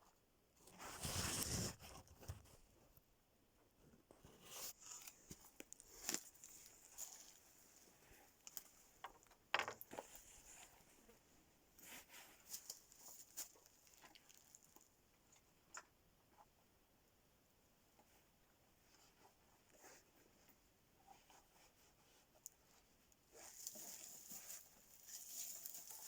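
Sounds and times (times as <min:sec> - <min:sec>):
faint rustling: 0:17.9 - 0:26.0.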